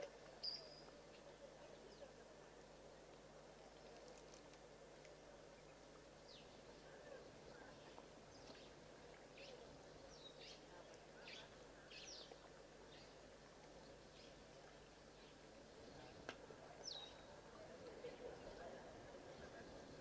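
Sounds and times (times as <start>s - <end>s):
faint bird chirps: 0.4s - 2.1s, 9.4s - 13.2s.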